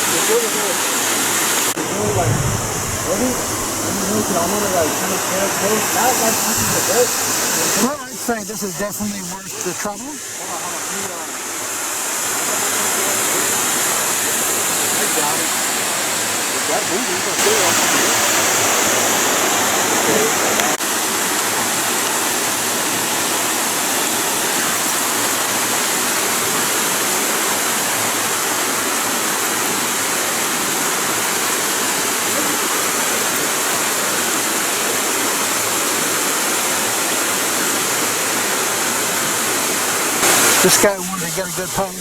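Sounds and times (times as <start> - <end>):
waterfall roaring: 1.8 - 20.8, 35.7 - 42.0.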